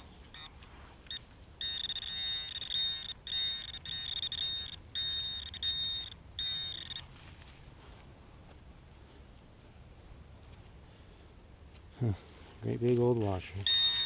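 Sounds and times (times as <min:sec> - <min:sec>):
metal detector alarm tone: 0:00.0 - 0:07.1, 0:13.4 - 0:14.0.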